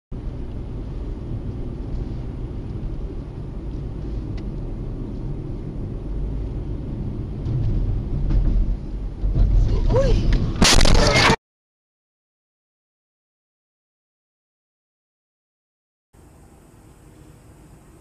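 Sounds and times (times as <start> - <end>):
car road and engine noise: 0.1 - 11.4, 16.2 - 18.0.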